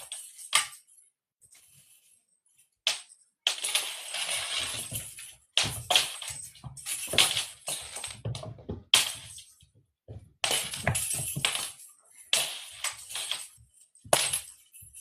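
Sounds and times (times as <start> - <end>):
cat toy clinking and rattling: 3.6 - 9.7, 10.4 - 15.0.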